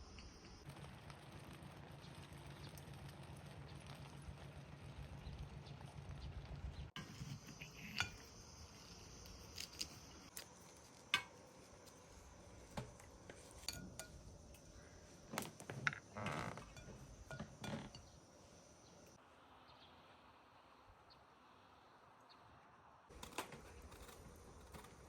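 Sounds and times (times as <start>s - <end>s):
dishes and utensils clinking: 7.0s - 8.4s, 12.7s - 14.7s, 15.4s - 18.2s
scraping and clattering: 15.3s - 18.2s.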